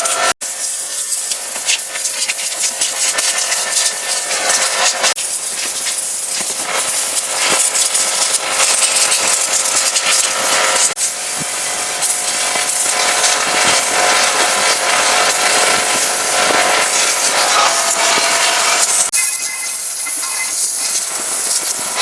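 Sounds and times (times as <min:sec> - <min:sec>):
pressure washer spraying: 0:00.0 - 0:22.0.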